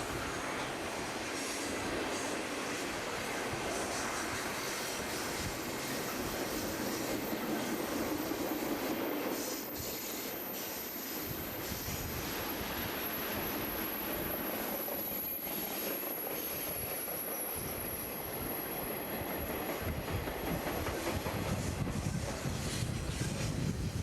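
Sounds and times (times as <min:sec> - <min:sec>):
train rumbling on rails: 0:00.0 - 0:24.0.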